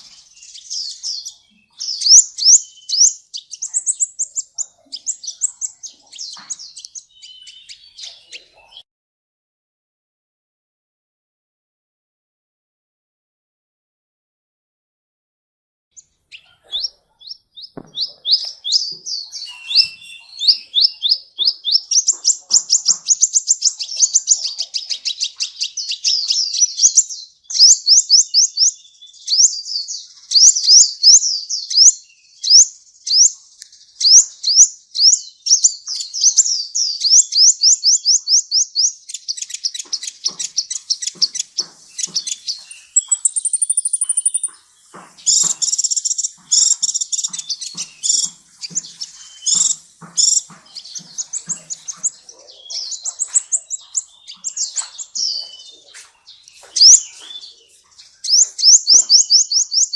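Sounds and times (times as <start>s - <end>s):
bird chirping: 0.0s - 8.8s, 16.0s - 59.9s
thin bird whistle: 1.9s - 4.4s, 17.8s - 22.0s, 42.8s - 44.5s.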